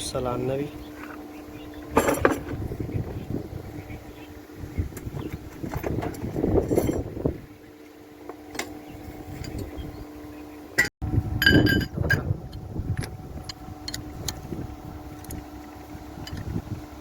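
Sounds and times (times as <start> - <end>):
low steady hum: 0.0 - 17.0
metal tools clinking and knocking: 1.9 - 2.6, 5.6 - 7.1.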